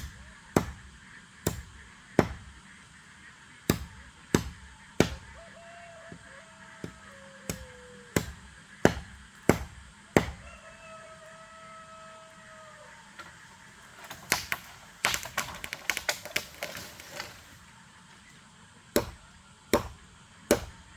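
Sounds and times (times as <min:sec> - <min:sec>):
blade chopping into wood: 0:00.0 - 0:02.5, 0:03.7 - 0:05.3, 0:08.2 - 0:10.4, 0:14.0 - 0:17.5, 0:18.9 - 0:20.8.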